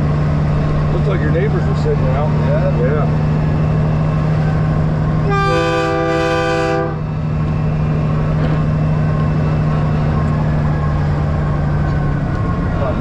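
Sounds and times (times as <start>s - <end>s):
diesel engine droning: 0.0s - 13.0s
truck air horn: 5.2s - 7.1s.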